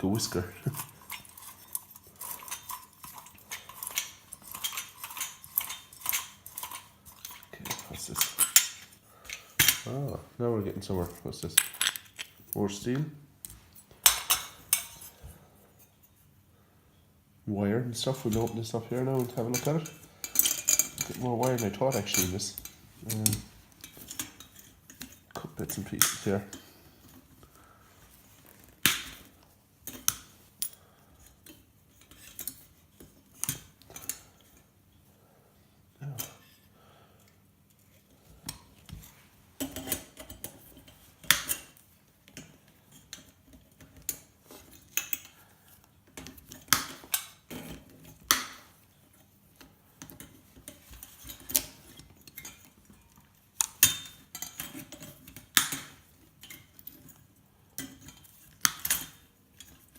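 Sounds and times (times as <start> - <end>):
metal parts clinking and clicking: 0.0 - 10.2, 11.0 - 15.2, 18.1 - 27.1, 28.4 - 34.6, 49.6 - 59.9.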